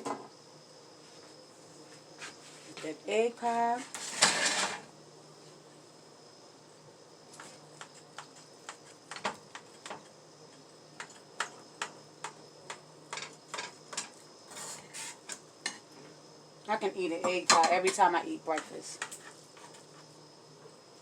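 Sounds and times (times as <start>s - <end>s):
faint kitchen hum: 0.0s - 21.0s.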